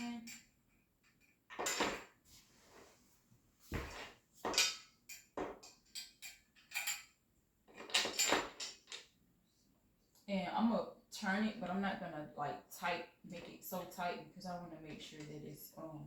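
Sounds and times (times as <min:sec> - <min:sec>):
screw and tool clinking: 0:04.5 - 0:09.0.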